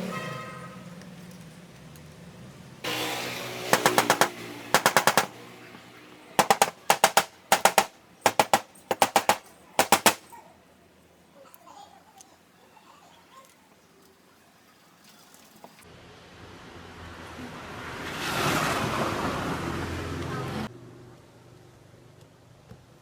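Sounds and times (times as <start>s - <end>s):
rapid knocking: 3.7s - 5.3s, 6.4s - 10.3s.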